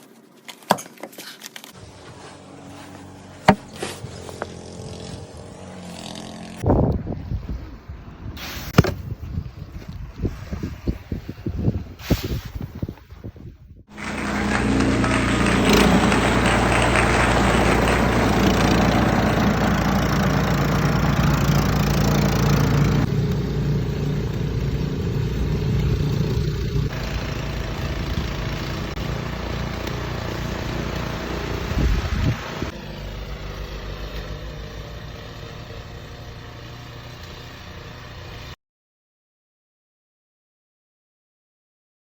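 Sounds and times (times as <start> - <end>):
engine running: 1.8 - 6.8, 13.9 - 38.6.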